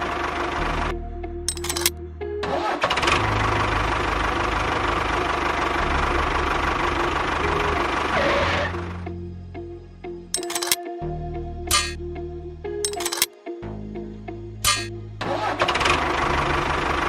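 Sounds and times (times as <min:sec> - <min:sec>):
sharp clicks: 0:01.5 - 0:01.9, 0:10.4 - 0:10.8, 0:11.7 - 0:12.0, 0:12.8 - 0:13.3, 0:14.6 - 0:14.9
small engine running: 0:14.7 - 0:17.0.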